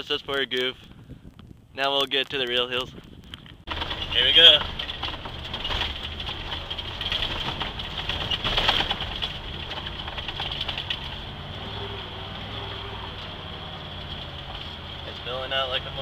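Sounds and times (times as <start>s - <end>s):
truck rattling over bumps: 3.6s - 16.0s
truck engine running: 3.7s - 16.0s.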